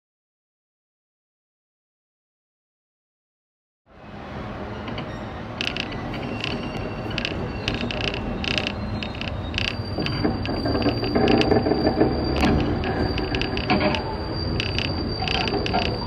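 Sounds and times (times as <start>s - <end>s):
train wheels rumbling on rail: 3.9s - 16.0s
wheels clicking over rail joints: 4.8s - 16.0s
thin high squeal: 4.9s - 16.0s.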